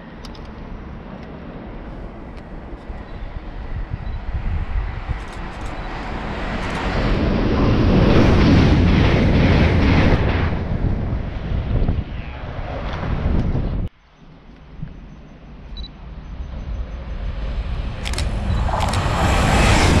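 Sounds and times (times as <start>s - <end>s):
train passing at speed: 0.0s - 13.4s, 15.1s - 20.0s
wind rumble on microphone: 0.0s - 20.0s.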